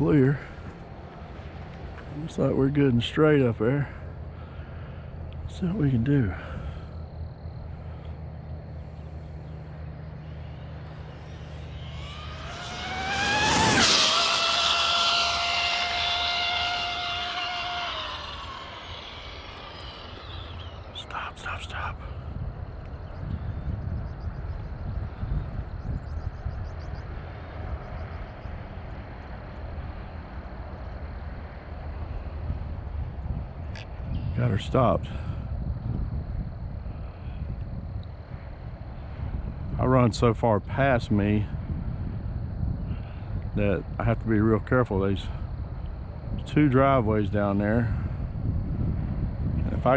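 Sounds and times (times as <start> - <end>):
wind rumble on microphone: 0.0 - 49.9
electric rc truck motor whining: 10.4 - 20.9
bird chirping: 18.0 - 21.9.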